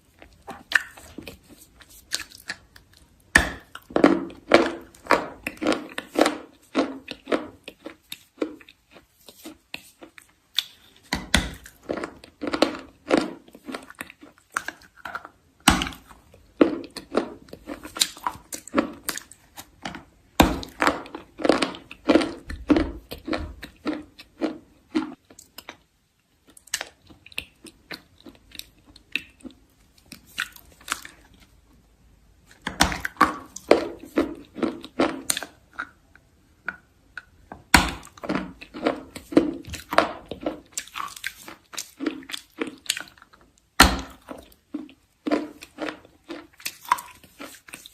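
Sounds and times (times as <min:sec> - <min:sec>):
chalk being chewed: 0:00.2 - 0:03.1, 0:05.0 - 0:11.0, 0:38.1 - 0:43.4, 0:44.3 - 0:47.9.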